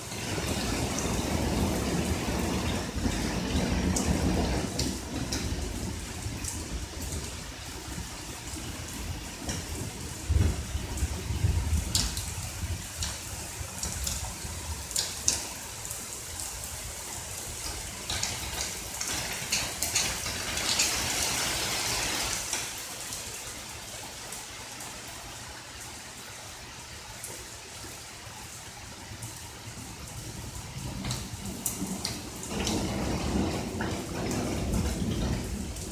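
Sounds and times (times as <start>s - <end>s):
low thunder rumble: 0.0s - 15.8s, 29.7s - 35.9s
rain falling: 0.0s - 35.9s
raindrops splashing: 0.0s - 35.9s.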